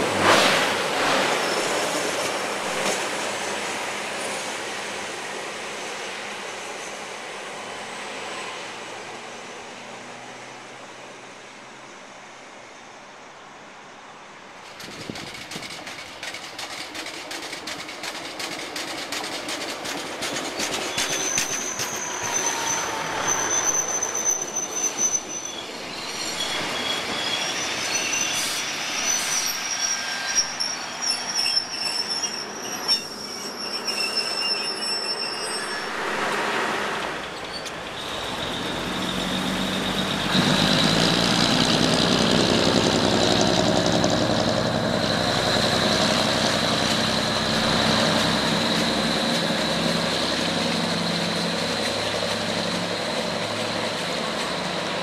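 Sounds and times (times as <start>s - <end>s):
train brake squeal: 1.1s - 2.9s, 20.3s - 41.2s, 44.9s - 54.9s
diesel train engine whining: 12.8s - 55.0s.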